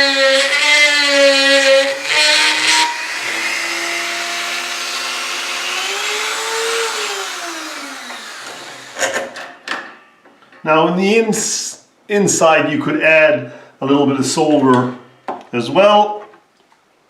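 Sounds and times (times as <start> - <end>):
rotary tool motor whining: 0.2 - 9.3.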